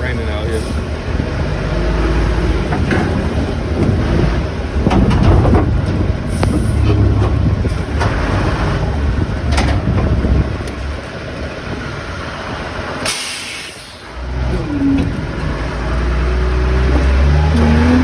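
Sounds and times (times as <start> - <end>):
forklift engine running: 0.0 - 18.0
metallic clanks: 2.6 - 11.6.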